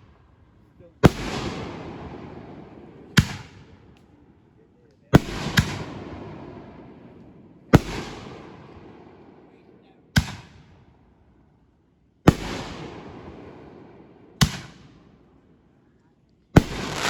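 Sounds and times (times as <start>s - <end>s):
fireworks bursting: 16.6s - 17.0s.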